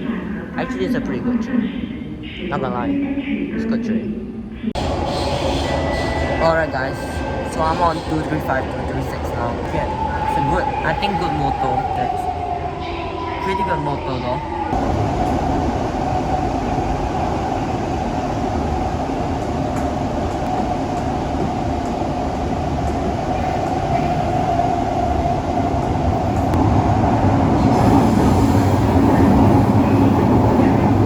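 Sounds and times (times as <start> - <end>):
train running rumble: 14.8 - 31.0.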